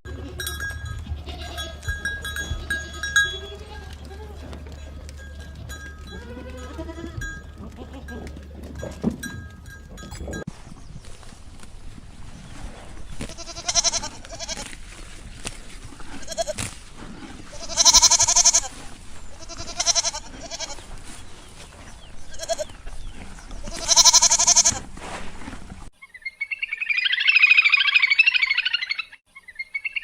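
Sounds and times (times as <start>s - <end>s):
livestock bleating: 0.1s - 9.0s, 13.3s - 14.7s, 16.0s - 16.6s, 17.5s - 18.7s, 19.4s - 20.8s, 22.3s - 22.8s, 23.6s - 24.8s.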